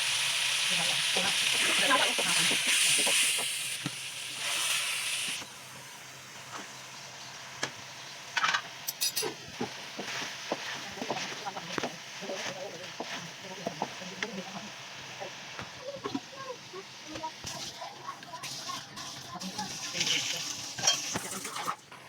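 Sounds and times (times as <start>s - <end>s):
food sizzling in a pan: 0.0s - 22.0s
spoon clicking against pan: 8.9s - 9.3s.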